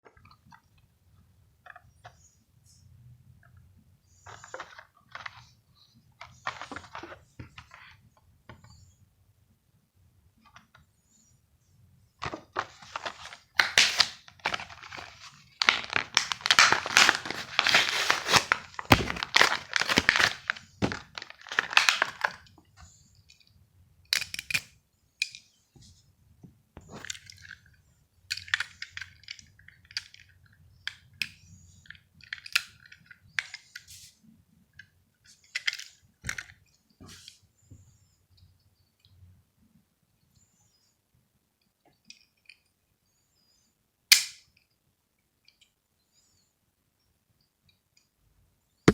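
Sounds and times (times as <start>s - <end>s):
plastic crackling: 4.3s - 5.6s, 6.2s - 7.9s, 12.2s - 22.5s
card tearing: 15.6s - 20.6s.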